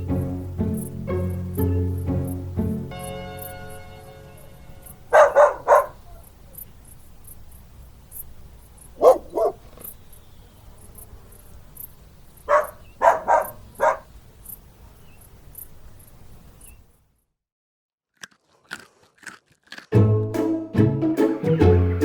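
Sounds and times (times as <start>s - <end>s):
dog barking: 5.1s - 6.3s, 9.0s - 9.7s, 12.5s - 14.1s.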